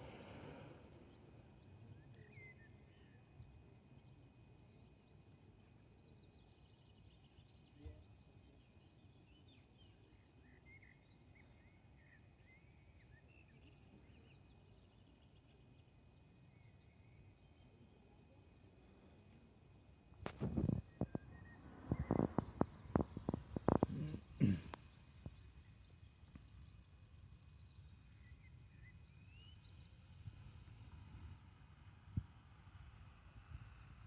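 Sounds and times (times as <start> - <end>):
insects trilling: 0.0 - 32.6
soft low background noise: 0.0 - 34.0
small chirps: 8.7 - 32.4.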